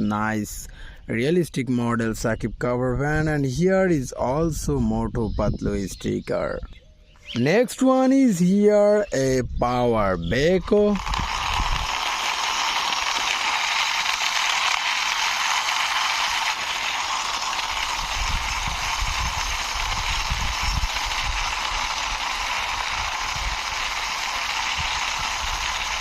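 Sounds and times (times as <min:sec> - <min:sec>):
toy wheels rattling on rough surface: 0:09.7 - 0:26.0.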